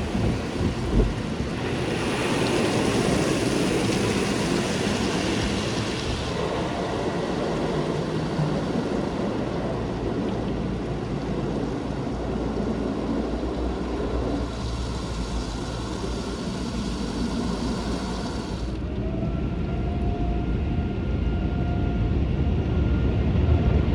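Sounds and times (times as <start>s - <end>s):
broad rushing hiss: 0.0s - 10.2s, 12.7s - 18.8s
low motor hum: 0.0s - 23.9s.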